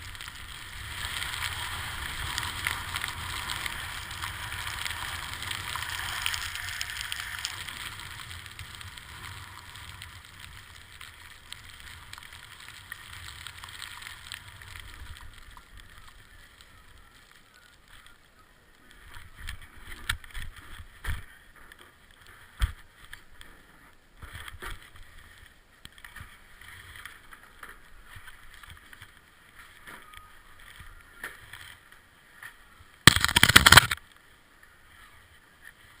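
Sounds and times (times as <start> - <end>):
skis hissing over snow: 0.0 - 15.2.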